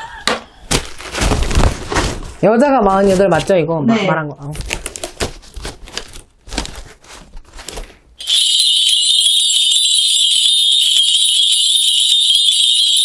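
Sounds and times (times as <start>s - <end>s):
brass bells jingling: 8.2s - 13.0s.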